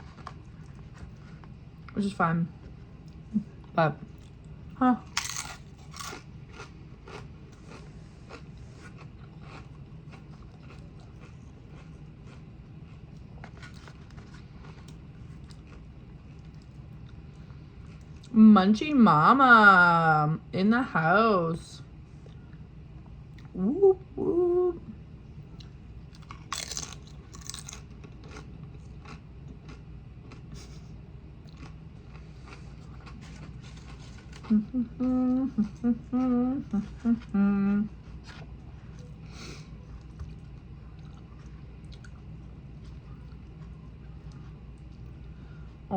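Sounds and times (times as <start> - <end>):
low steady hum: 0.0 - 45.9
person chewing food: 2.6 - 18.3, 25.5 - 35.8, 38.0 - 45.2.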